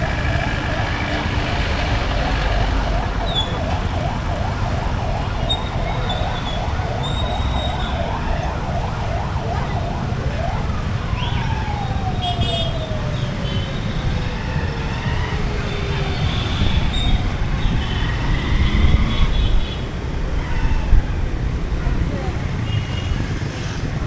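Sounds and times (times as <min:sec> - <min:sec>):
emergency siren: 0:00.0 - 0:21.6
low rumble of traffic: 0:00.0 - 0:24.0.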